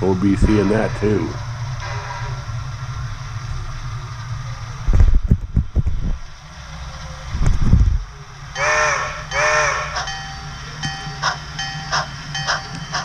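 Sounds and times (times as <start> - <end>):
low rumbling: 0.0 - 12.5
locomotive horn blasts: 8.6 - 11.2.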